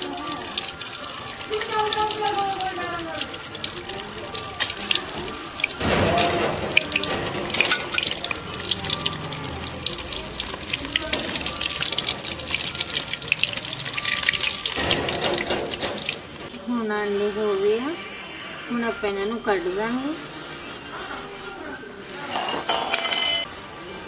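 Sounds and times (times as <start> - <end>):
eggs deep-frying in hot oil: 0.0 - 16.6.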